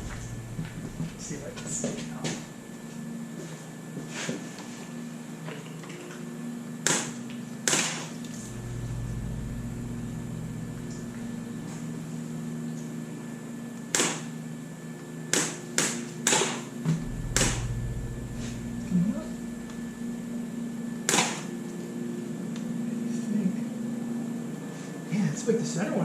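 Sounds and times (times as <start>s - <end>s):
low rumble: 0.0s - 2.6s, 8.4s - 12.5s, 16.9s - 21.0s
steady mechanical hum: 0.0s - 26.0s.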